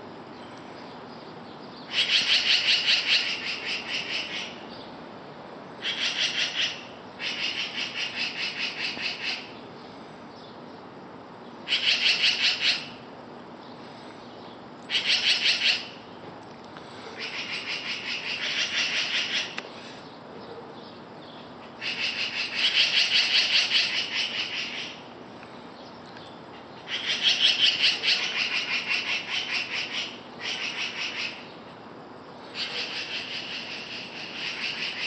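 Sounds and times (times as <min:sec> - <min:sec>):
birds rattling alarm calls: 0:01.9 - 0:04.6, 0:05.8 - 0:09.6, 0:11.6 - 0:13.1, 0:14.9 - 0:16.1, 0:17.1 - 0:19.9, 0:21.3 - 0:25.1, 0:26.4 - 0:31.6, 0:32.4 - 0:35.0.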